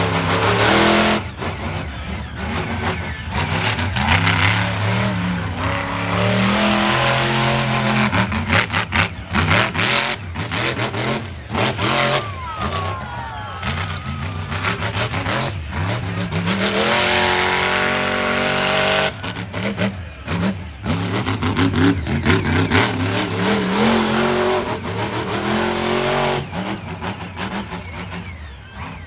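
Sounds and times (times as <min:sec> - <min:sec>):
monster truck engine revving: 0:00.0 - 0:29.0.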